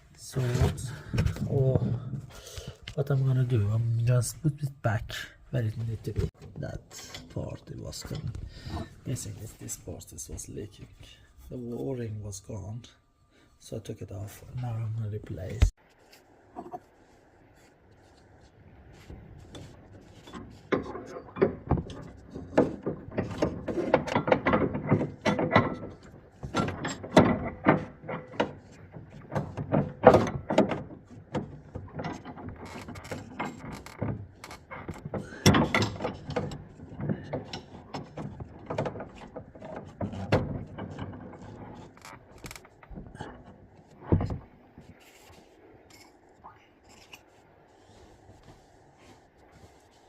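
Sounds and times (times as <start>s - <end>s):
clicks and knocks of hand work: 18.0s - 50.0s.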